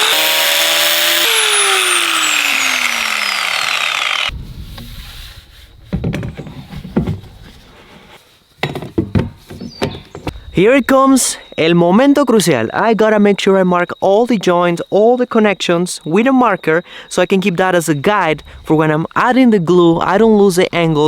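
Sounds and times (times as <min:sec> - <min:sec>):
power saw cutting plastic pipe: 0:00.0 - 0:04.3
knocks and handling sounds: 0:05.9 - 0:10.5.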